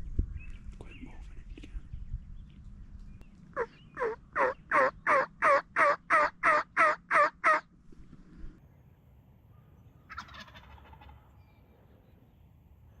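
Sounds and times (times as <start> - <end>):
turkey yelps: 3.6 - 7.7, 10.1 - 11.2.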